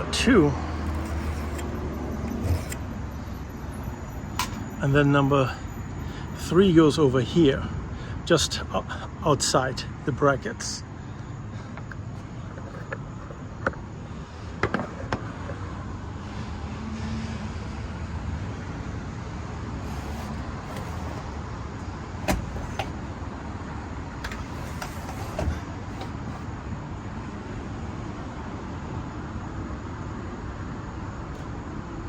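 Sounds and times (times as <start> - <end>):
distant road traffic: 0.0 - 32.0
hardware clicking and knocking: 22.2 - 23.0.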